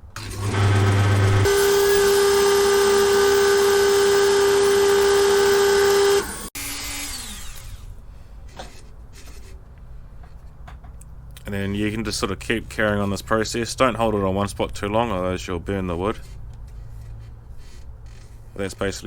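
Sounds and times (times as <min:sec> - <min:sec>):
power tool whining: 0:00.0 - 0:08.0.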